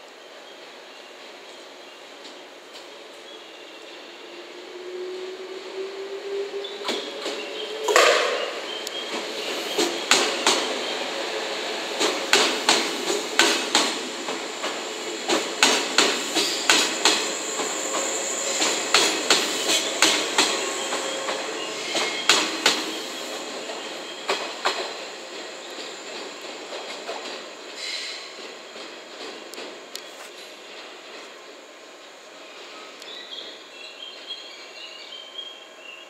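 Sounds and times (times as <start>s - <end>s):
train wheels clacking over rail joints: 6.8s - 10.8s, 11.9s - 23.0s, 23.6s - 31.3s.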